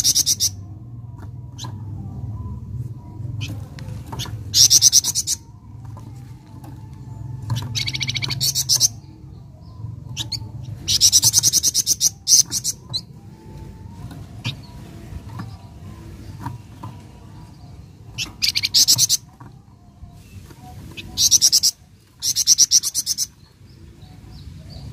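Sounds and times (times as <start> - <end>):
songbird singing fast trills: 7.6 - 13.2, 20.9 - 24.9.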